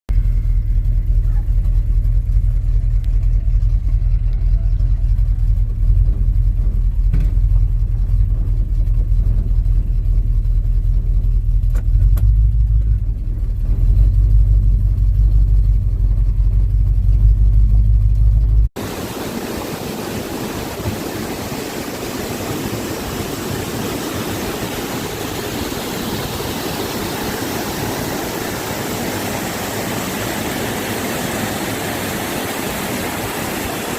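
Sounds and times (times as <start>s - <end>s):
truck engine rumbling: 0.1s - 33.9s
steady rushing hiss: 18.8s - 33.9s.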